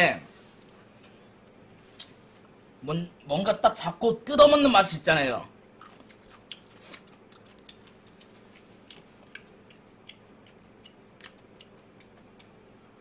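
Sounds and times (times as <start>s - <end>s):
chewing crispy food: 5.7s - 13.0s.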